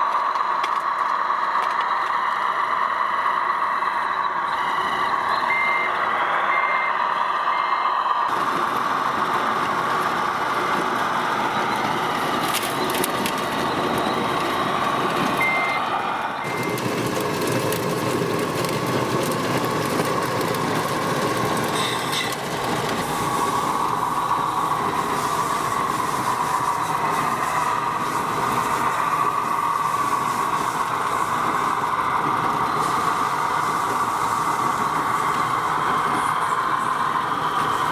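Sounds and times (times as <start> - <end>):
reversing beeper beeps: 1.4 - 8.3, 11.4 - 17.0.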